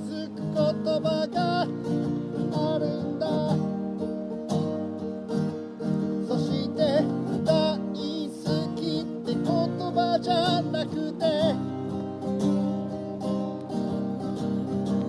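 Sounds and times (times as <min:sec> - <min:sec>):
person singing: 0:00.0 - 0:05.0, 0:06.1 - 0:12.2
acoustic guitar strumming: 0:00.0 - 0:15.0.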